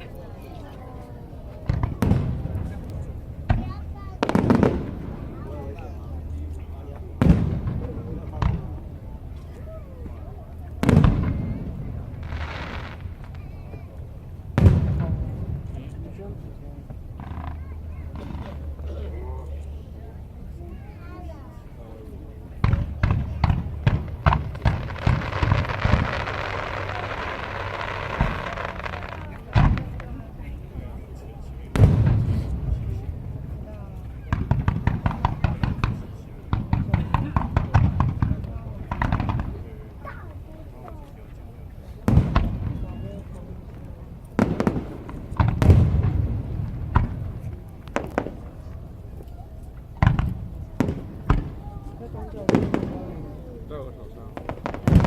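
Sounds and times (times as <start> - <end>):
firework booms: 1.6 - 5.8, 7.2 - 9.0, 10.7 - 13.4, 14.4 - 16.0, 16.9 - 18.9, 22.6 - 30.5, 31.7 - 39.7, 42.0 - 48.9, 49.9 - 53.5, 54.3 - 55.0
crackling firework shells: 10.7 - 13.5, 22.6 - 30.4, 34.3 - 39.6, 42.0 - 53.3, 54.0 - 55.0.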